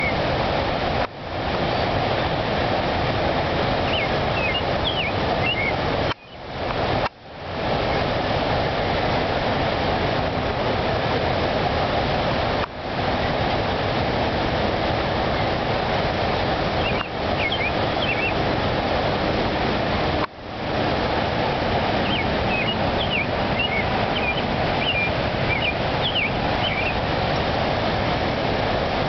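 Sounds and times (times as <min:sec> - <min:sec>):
rush of falling water: 0:00.0 - 0:29.0
faint high bird chirps: 0:03.9 - 0:06.4, 0:16.8 - 0:18.4, 0:22.0 - 0:27.0.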